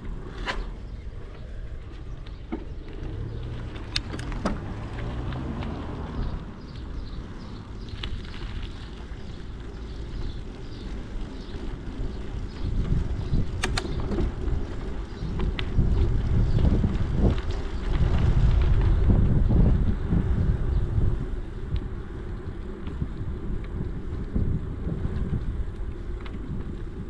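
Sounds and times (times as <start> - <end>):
wind buffeting microphone: 0.0 - 27.0
sharp clicks: 13.5 - 14.3.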